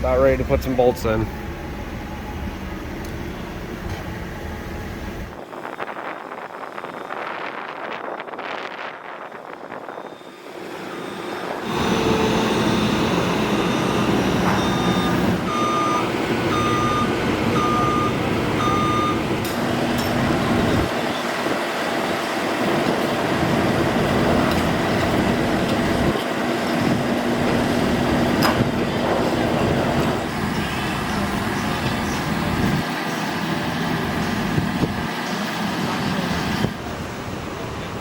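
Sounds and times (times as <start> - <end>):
diesel engine running: 0.0 - 5.9, 9.4 - 38.0
backup alarm beeping: 9.9 - 21.4.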